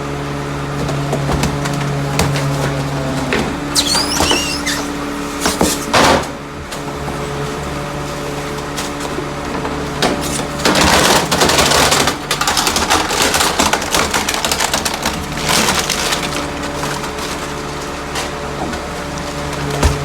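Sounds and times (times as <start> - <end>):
garbage truck packer crushing refuse: 0.0 - 20.0
refuse cracking and splintering: 8.6 - 20.0.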